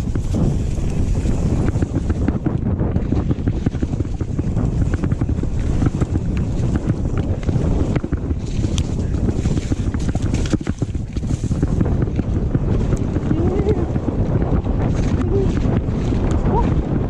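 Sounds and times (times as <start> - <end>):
bike clattering on rough trail: 0.0 - 13.2
wind buffeting microphone: 0.0 - 17.0.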